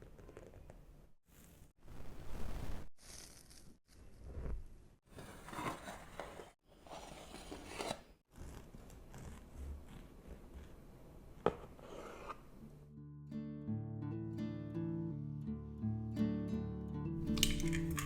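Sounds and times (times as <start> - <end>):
food preparation rustling and scraping: 5.1 - 8.1, 11.5 - 12.6.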